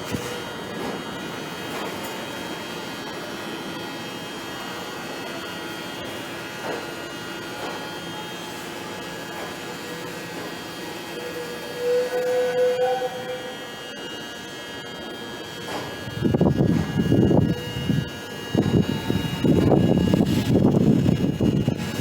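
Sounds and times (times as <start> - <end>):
electric train humming: 2.5 - 22.0
loud train horn blast: 11.3 - 13.9.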